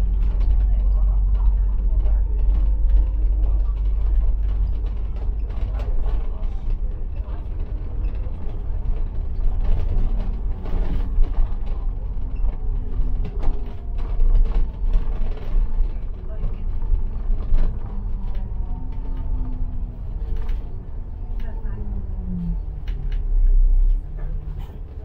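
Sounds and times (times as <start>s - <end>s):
bus engine and road rumble: 0.0s - 25.0s
bus panels creaking and rattling: 2.2s - 21.8s.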